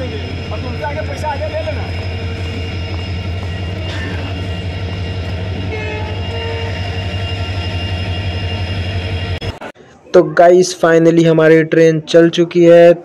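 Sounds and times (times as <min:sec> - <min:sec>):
train engine drone: 0:00.0 - 0:10.0.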